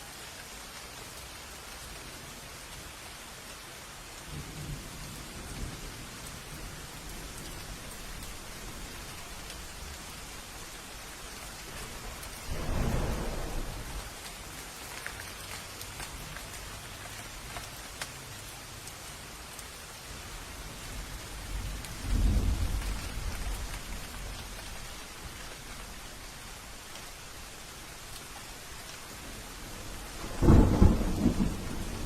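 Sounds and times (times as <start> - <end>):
steady rain: 0.0 - 32.0
rolls of thunder: 12.1 - 14.2, 21.6 - 24.4, 30.2 - 32.0.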